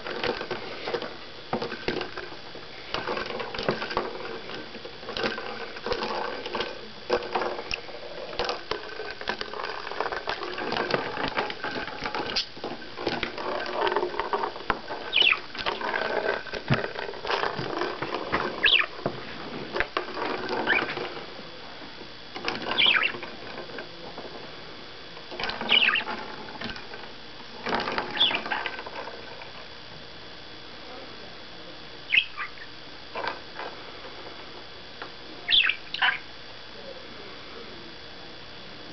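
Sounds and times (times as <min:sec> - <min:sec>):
budgie chirping: 0:15.1 - 0:15.4, 0:18.6 - 0:18.9, 0:22.8 - 0:23.1, 0:32.1 - 0:32.7, 0:35.5 - 0:36.3.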